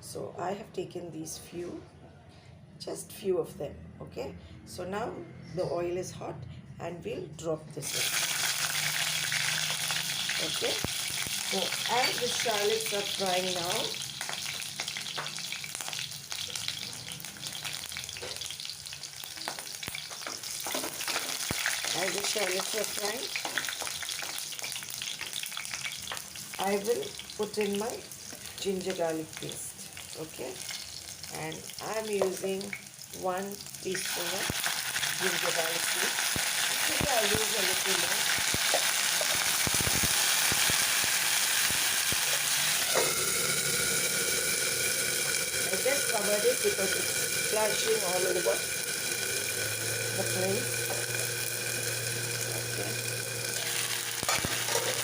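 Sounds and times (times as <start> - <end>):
shallots sizzling in oil: 7.9 - 55.0
oil popping: 36.2 - 55.0.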